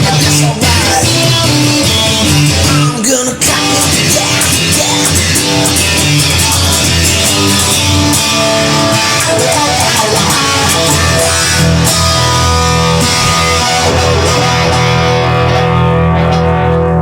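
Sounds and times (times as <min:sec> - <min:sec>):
instrumental rock music: 0:00.0 - 0:17.0.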